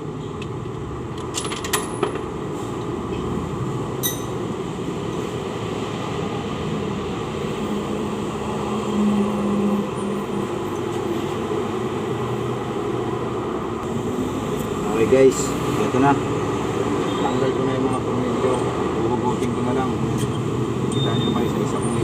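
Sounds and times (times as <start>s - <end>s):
steady background hum: 3.8s - 5.4s
metal tools clinking: 4.0s - 4.4s.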